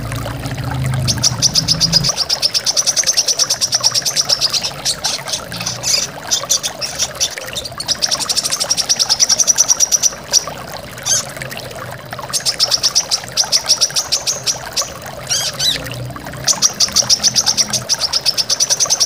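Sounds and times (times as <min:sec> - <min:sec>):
bird singing rapid high trills: 0:01.0 - 0:11.3, 0:12.3 - 0:19.0.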